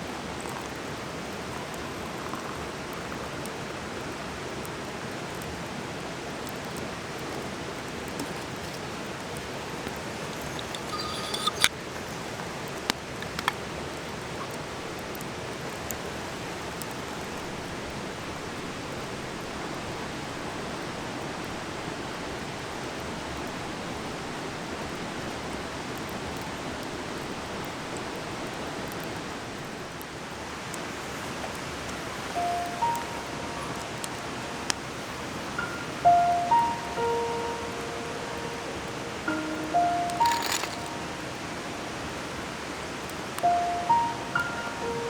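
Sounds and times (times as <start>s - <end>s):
stream rushing: 0.0s - 45.0s
sharp clicks: 39.3s - 41.2s.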